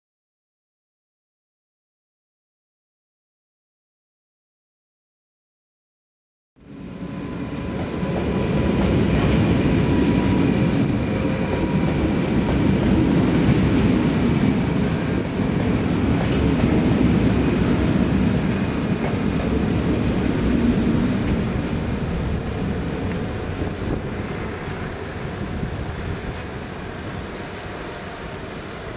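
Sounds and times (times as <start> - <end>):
train wheels rumbling on rails: 6.6 - 28.9.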